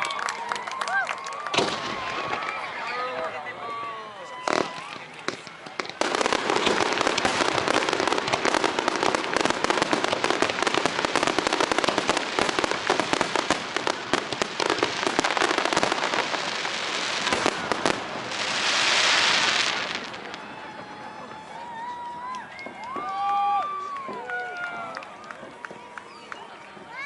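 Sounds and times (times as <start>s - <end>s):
fireworks crackling: 0.0s - 27.0s.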